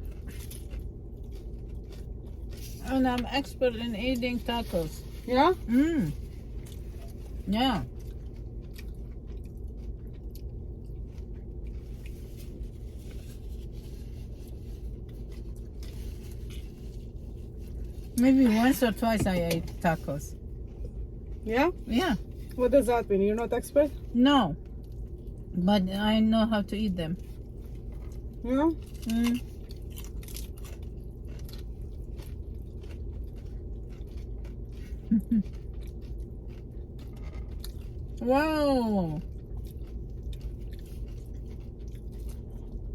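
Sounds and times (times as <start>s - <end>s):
person chewing and biting food: 0.0s - 2.8s, 6.0s - 18.2s, 27.2s - 38.2s, 39.2s - 42.9s
low steady rumble: 0.0s - 42.9s
steady low hum: 0.0s - 42.9s.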